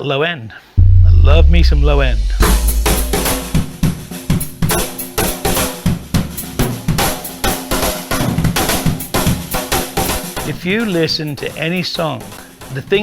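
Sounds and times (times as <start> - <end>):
steady low tone: 0.8 - 4.2.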